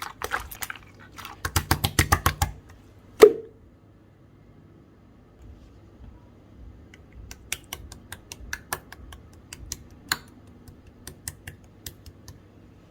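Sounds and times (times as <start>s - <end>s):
slime squished by hand: 0.0s - 2.6s.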